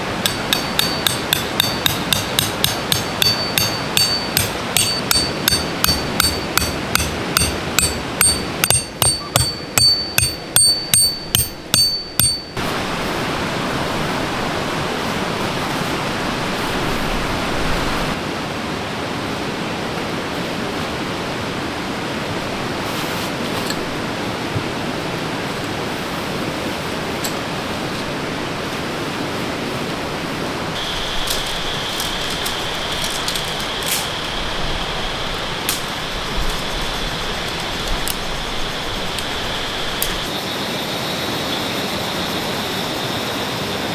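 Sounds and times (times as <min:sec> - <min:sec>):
hammer blows on metal: 0:00.0 - 0:12.6
forest stream rushing: 0:00.0 - 0:43.9.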